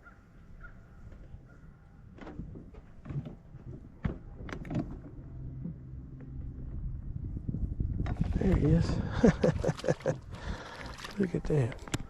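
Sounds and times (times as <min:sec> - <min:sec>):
knocks and clicks of handling: 0:02.1 - 0:06.5
low rumble: 0:03.8 - 0:10.5.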